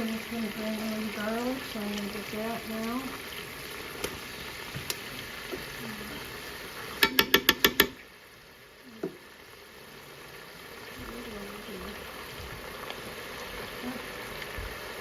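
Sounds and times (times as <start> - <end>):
low hiss: 0.0 - 15.0
sharp kitchen knocks: 7.0 - 8.0.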